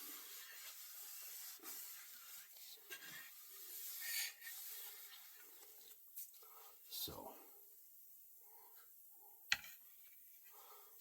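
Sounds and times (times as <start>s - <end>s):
rubbing strokes on wood: 0.0s - 5.6s.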